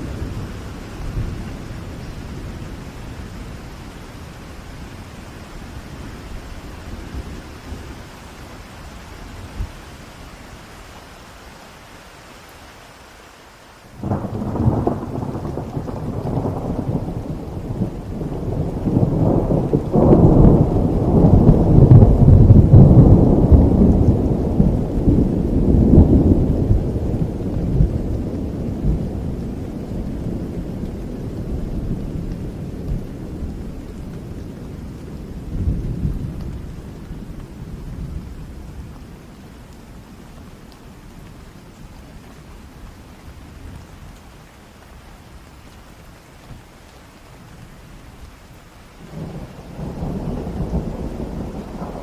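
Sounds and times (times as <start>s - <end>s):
steady rain: 0.0s - 52.0s
thunderclap: 14.0s - 29.6s, 49.1s - 52.0s
low rolling thunder rumble: 14.0s - 44.2s, 48.9s - 52.0s.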